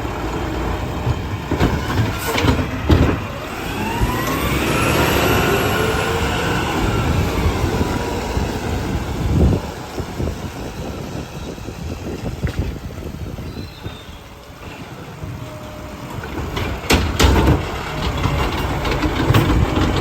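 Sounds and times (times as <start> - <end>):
garbage truck hydraulics whining: 0.0 - 20.0
low engine rumble: 0.0 - 20.0.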